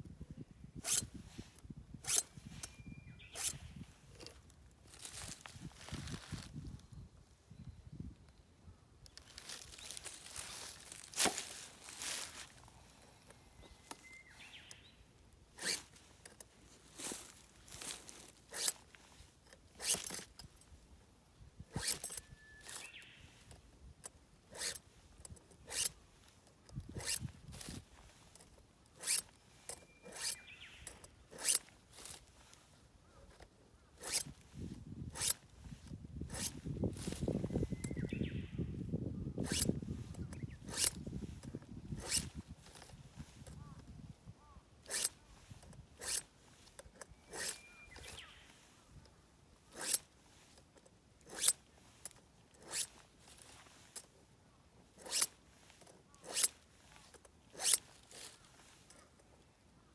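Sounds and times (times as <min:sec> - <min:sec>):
short rasping strokes: 0:00.8 - 0:06.5, 0:09.2 - 0:20.8, 0:21.6 - 0:23.7, 0:24.4 - 0:54.2, 0:54.9 - 0:59.2
bird chirping: 0:02.3 - 0:04.2, 0:13.3 - 0:15.8, 0:21.8 - 0:23.6, 0:29.0 - 0:31.6, 0:37.2 - 0:41.1, 0:47.1 - 0:49.0.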